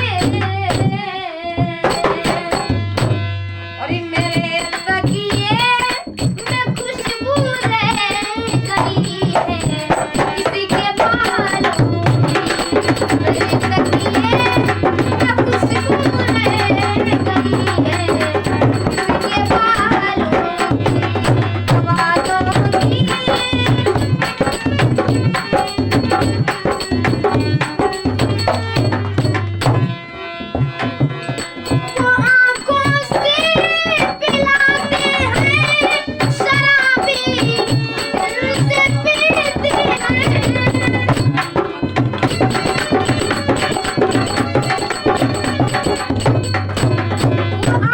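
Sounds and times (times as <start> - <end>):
hand-drum rhythm: 0.0 - 47.9
instrumental melody line: 0.0 - 47.9.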